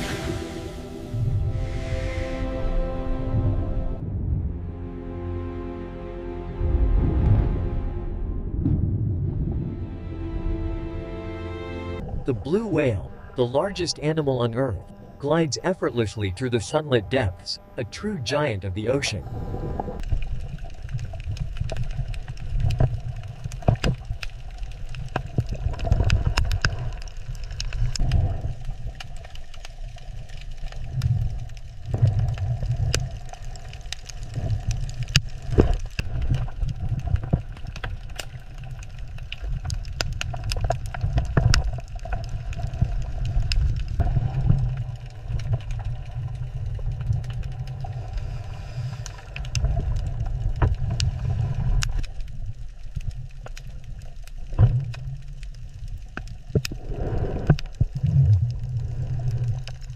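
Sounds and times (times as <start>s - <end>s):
low underwater rumble: 0.0s - 5.6s, 6.3s - 16.5s, 19.1s - 59.9s
sharp clicks and crackles: 19.8s - 59.9s.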